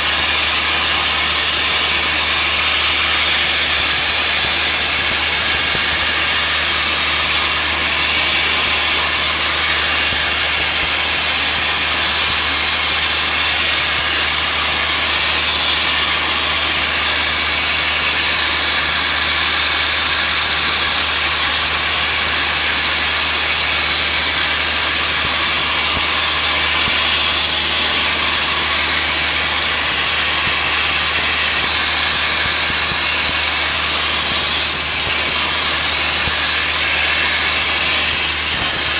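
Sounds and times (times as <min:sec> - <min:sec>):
sandblasting nozzle hissing: 0:00.0 - 0:38.9.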